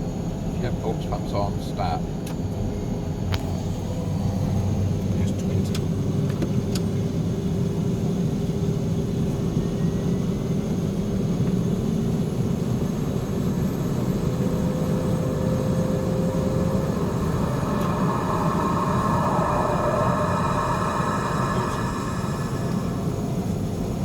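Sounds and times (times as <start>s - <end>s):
turboprop engine droning: 0.0s - 24.0s
turboprop engine spooling up whine: 7.0s - 24.0s.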